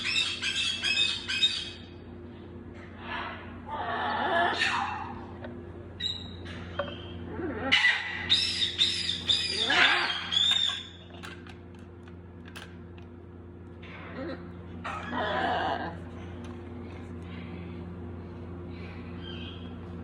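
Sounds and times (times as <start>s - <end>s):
baby parrots squawking: 0.0s - 1.8s, 3.9s - 5.0s, 7.7s - 10.9s.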